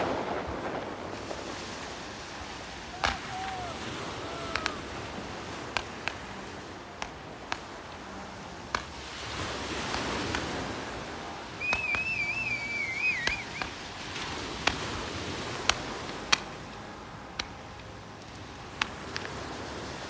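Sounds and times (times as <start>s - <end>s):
high wavering firework whistle: 0.0s - 6.3s, 9.8s - 16.8s
fireworks cracking: 0.0s - 20.0s
rockets launching with hiss: 0.0s - 20.0s.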